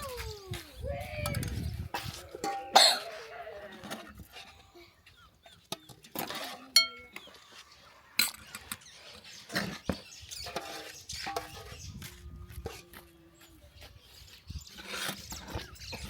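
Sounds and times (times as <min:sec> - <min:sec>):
dishes and utensils clattering: 0:02.0 - 0:03.2, 0:06.1 - 0:07.3, 0:10.4 - 0:11.8.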